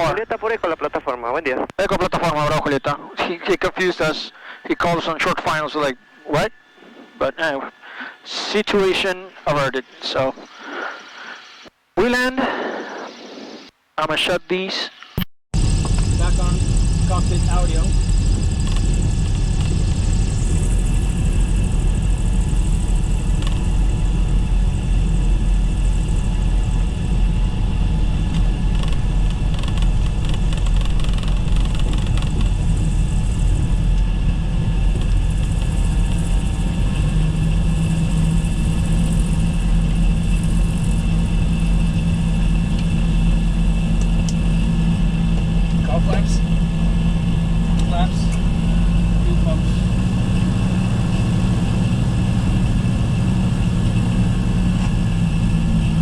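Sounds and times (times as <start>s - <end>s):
piston aircraft engines droning: 0.0s - 11.7s, 15.6s - 56.0s
steady hum: 15.6s - 56.0s.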